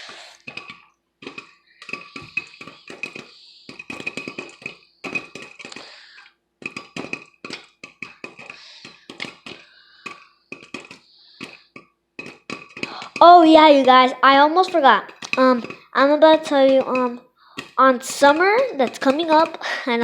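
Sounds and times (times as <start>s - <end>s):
popcorn popping in hot oil: 0.0s - 20.0s.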